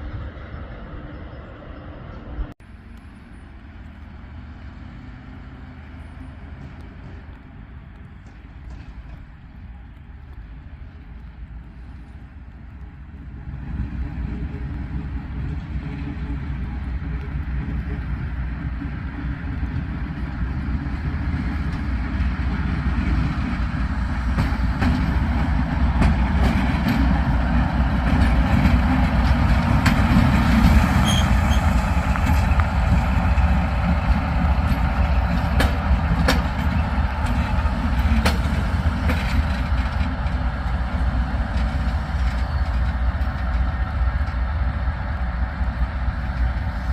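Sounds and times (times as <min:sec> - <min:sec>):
train rumbling past: 0:00.0 - 0:46.9
wheels clicking over rails: 0:14.2 - 0:46.9.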